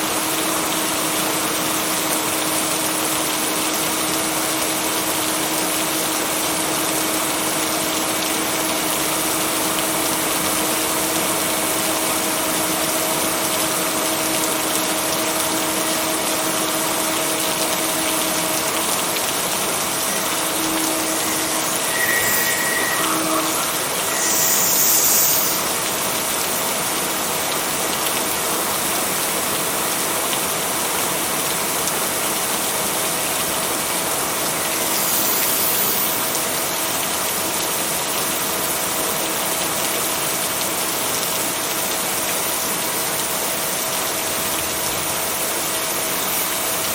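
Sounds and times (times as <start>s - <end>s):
heavy rain hiss: 0.0s - 46.9s
low hum: 18.0s - 26.2s.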